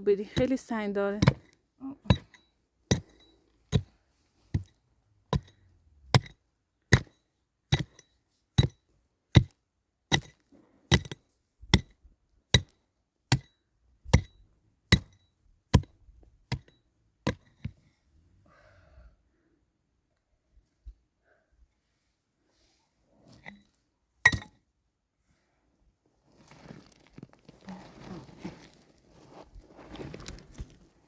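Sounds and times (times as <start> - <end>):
hand tool striking wood: 1.2 - 3.9, 6.2 - 7.1, 14.1 - 15.9.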